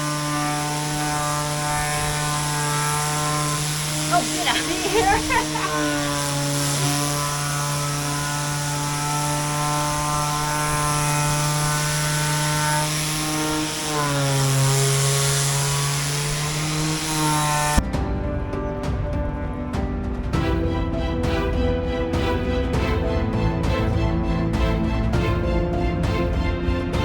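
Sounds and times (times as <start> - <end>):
small motor buzzing hum: 0.0 - 17.8
music: 0.0 - 27.0.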